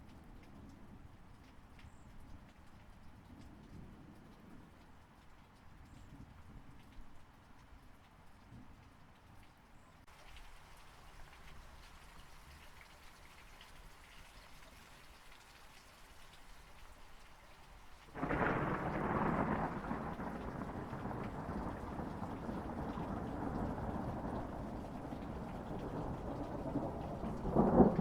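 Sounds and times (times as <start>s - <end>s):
rain falling: 0.0s - 28.0s
thunderclap rumbling: 18.2s - 28.0s.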